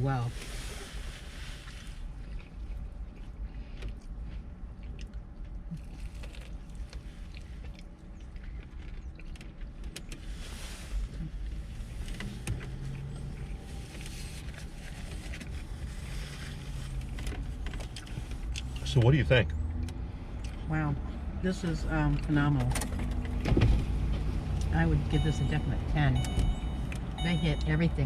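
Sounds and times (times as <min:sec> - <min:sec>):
low car rumble: 0:00.0 - 0:28.0
low steady hum: 0:00.0 - 0:28.0
chewing: 0:02.0 - 0:10.2.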